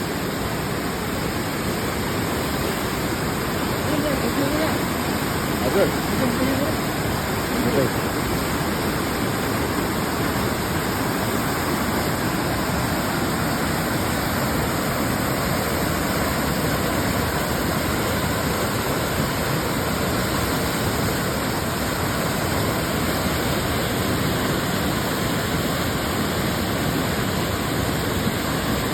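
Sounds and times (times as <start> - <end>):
waterfall rushing: 0.0 - 28.9.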